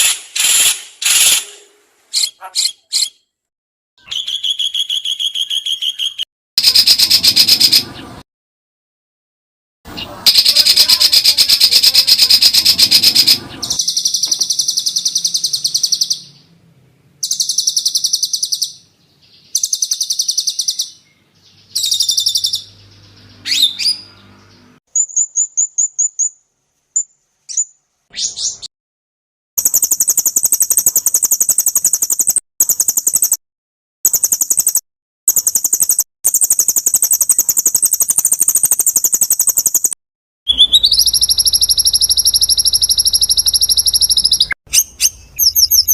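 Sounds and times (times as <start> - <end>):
songbird trills and calls: 10.0 - 16.5, 17.2 - 26.4, 34.1 - 39.9, 40.5 - 45.9.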